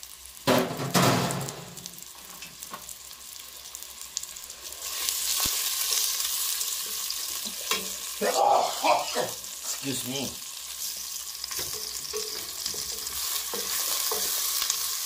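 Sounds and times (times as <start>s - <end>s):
vegetables sizzling in oil: 0.0s - 15.0s
wooden spatula scraping a pot: 10.8s - 14.8s.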